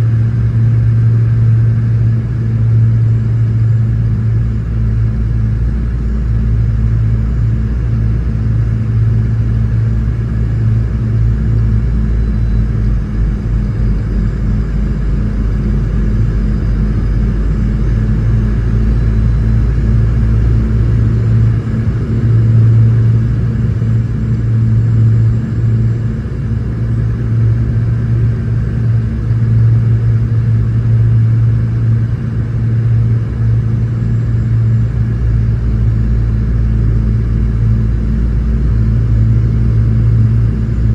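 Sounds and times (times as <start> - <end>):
airplane cabin engine drone: 0.0 - 40.9.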